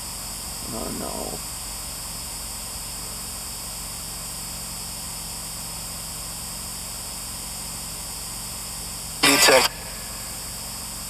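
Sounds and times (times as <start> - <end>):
faint low hum: 0.6 - 1.6, 9.2 - 11.0.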